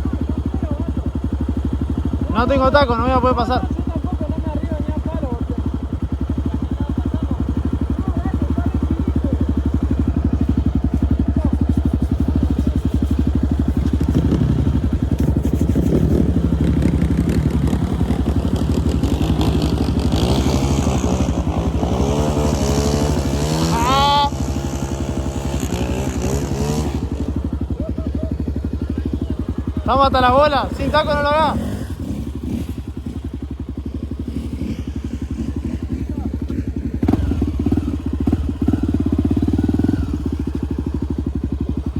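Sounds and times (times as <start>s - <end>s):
motorcycle engine idling: 0.0s - 41.9s
motorcycle engine revving: 0.0s - 41.9s.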